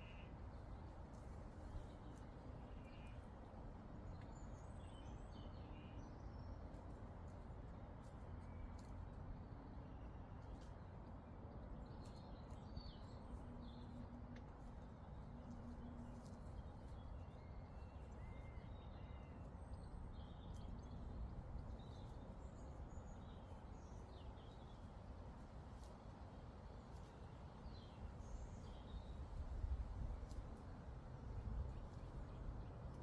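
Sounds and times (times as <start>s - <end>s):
low rumble of breeze: 0.0s - 33.0s
small birds chirping: 14.6s - 33.0s.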